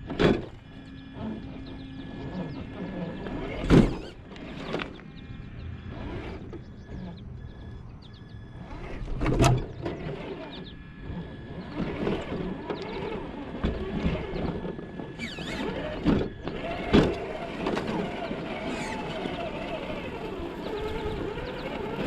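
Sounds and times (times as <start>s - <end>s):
rc car electric motor whining: 0.0s - 22.0s.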